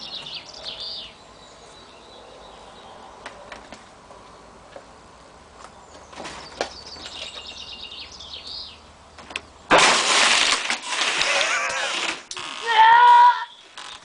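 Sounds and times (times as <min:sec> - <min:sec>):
loud demolition crash: 0:09.7 - 0:12.3.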